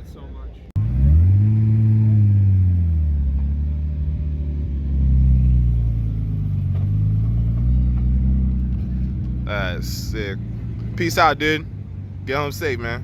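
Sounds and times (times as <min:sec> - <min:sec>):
car engine running: 0:00.7 - 0:13.0.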